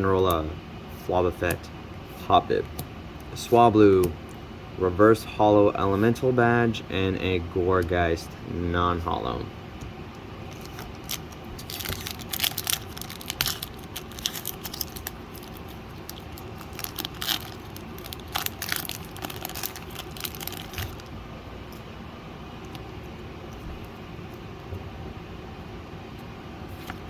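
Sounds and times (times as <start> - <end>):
low background hum: 0.0 - 27.0
foil wrapper tearing and crinkling: 10.5 - 21.1.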